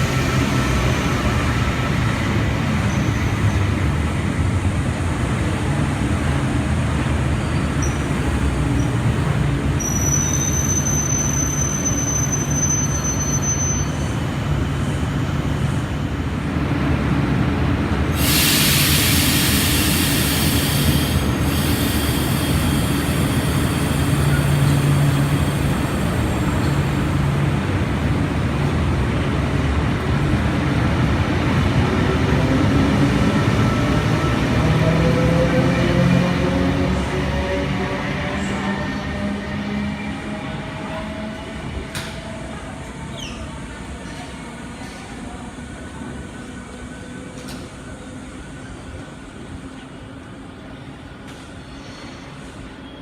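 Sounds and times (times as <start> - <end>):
train rumbling: 0.0 - 53.0
high thin wheel squeal: 9.8 - 14.2
burst of hiss: 18.2 - 24.2.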